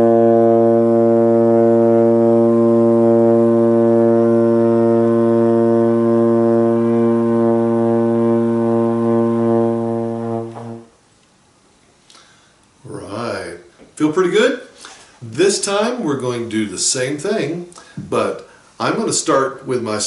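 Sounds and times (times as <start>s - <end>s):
trombone long low note: 0.0s - 11.0s.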